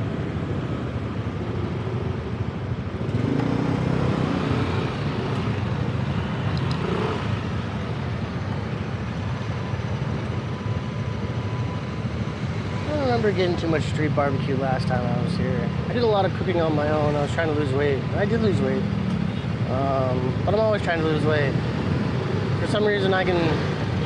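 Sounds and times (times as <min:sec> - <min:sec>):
road noise: 0:00.0 - 0:24.0.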